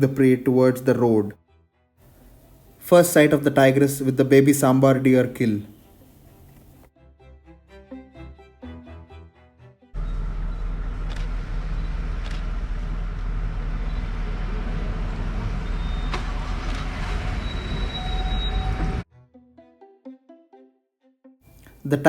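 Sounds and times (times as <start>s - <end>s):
vehicle engines idling: 5.7s - 6.9s, 10.0s - 18.0s.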